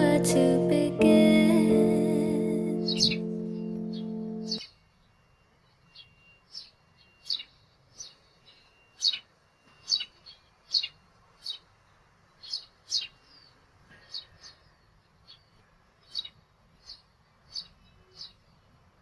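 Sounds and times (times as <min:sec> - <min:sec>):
sparrows chirping: 0:02.6 - 0:04.8, 0:05.6 - 0:18.7.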